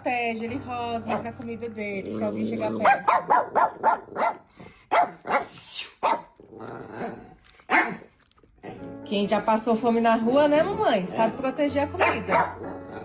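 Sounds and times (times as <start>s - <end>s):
puppy growling: 2.0s - 9.0s, 10.3s - 13.0s
puppy snarling barks: 2.8s - 8.8s, 12.0s - 13.0s.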